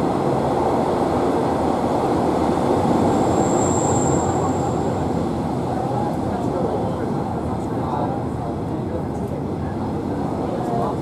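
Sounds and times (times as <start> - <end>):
train interior rumble: 0.0 - 11.0
thin high squeal: 3.3 - 4.7.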